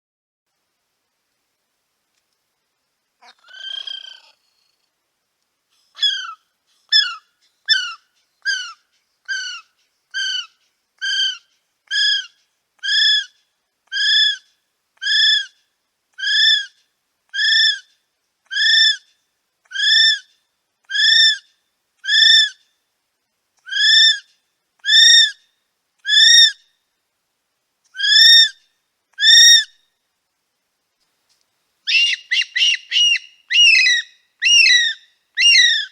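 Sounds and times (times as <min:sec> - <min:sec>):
kiwi whistled calls: 0:05.8 - 0:15.6, 0:16.2 - 0:17.9, 0:20.9 - 0:22.6, 0:23.6 - 0:25.4, 0:26.0 - 0:26.6, 0:28.0 - 0:28.6, 0:29.2 - 0:29.8, 0:31.9 - 0:35.9.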